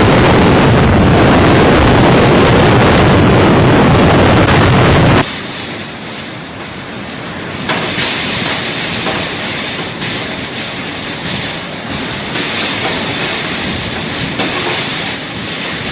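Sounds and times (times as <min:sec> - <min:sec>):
strong wind roaring: 0:00.0 - 0:15.9.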